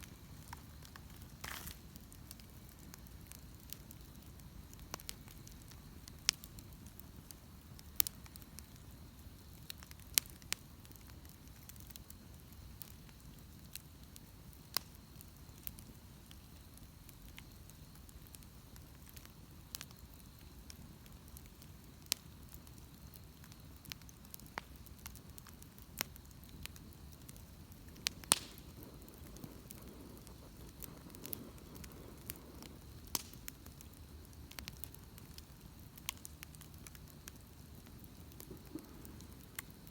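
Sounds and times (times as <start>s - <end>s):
bonfire crackling and popping: 0.0s - 39.9s
low fire rumble: 0.0s - 39.9s.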